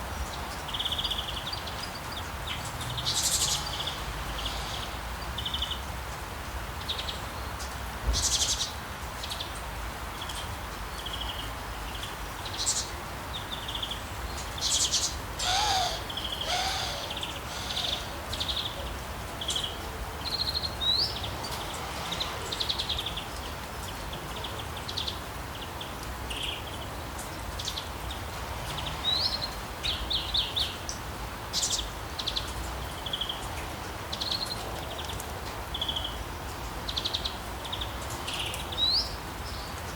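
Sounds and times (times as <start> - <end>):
rain falling: 0.0 - 39.9
songbirds chirping and trilling: 0.0 - 39.9
lower gliding bird calls: 14.8 - 18.8.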